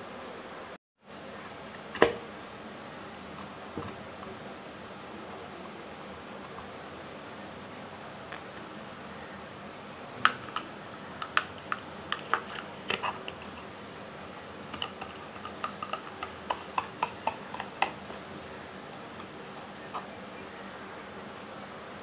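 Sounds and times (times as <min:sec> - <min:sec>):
plastic fan blades clicking: 0:14.7 - 0:18.0.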